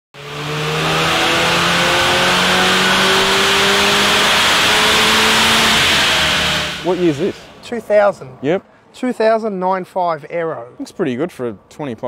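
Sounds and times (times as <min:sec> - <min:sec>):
car engine accelerating: 0:00.2 - 0:07.6
road and wind noise: 0:00.2 - 0:09.0.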